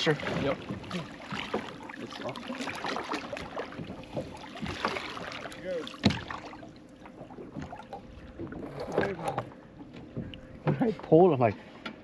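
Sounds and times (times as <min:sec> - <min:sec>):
knocks and clatter on a boat: 0:00.0 - 0:12.0
water noise: 0:00.0 - 0:12.0
wind: 0:00.0 - 0:12.0.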